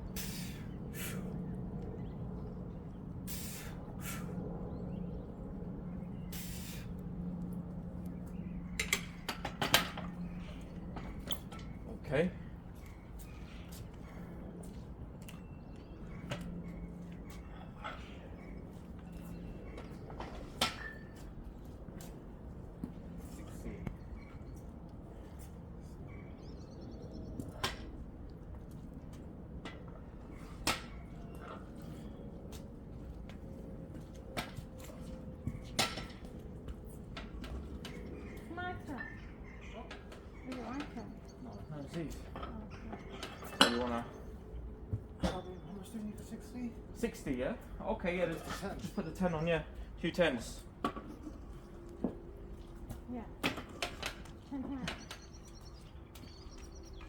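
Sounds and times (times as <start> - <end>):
steady low rumble: 0.0 - 20.6
sharp hissing exhalations: 0.1 - 1.3, 3.2 - 4.4, 6.3 - 7.0.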